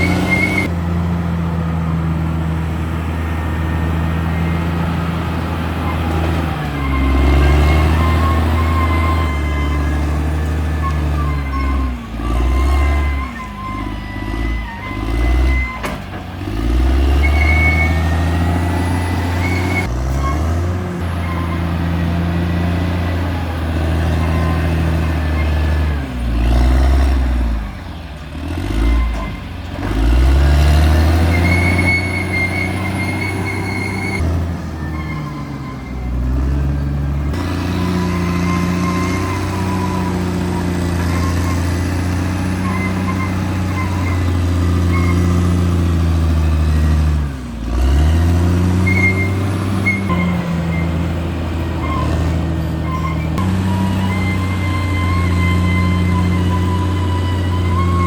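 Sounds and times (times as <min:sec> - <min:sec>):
bulldozer diesel engine running: 0:00.0 - 0:58.0
faint high squeal: 0:31.2 - 0:34.2, 0:52.8 - 0:58.0.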